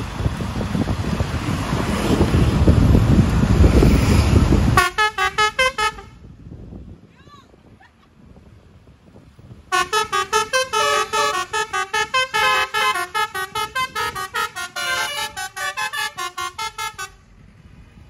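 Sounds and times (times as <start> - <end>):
musical air horn melody: 4.8 - 6.2, 9.7 - 17.2.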